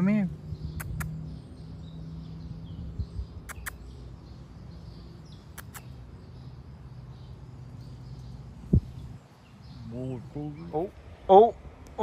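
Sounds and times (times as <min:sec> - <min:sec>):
birds chirping faintly: 0:00.0 - 0:12.0
sharp clicks: 0:03.5 - 0:03.8, 0:05.5 - 0:05.9.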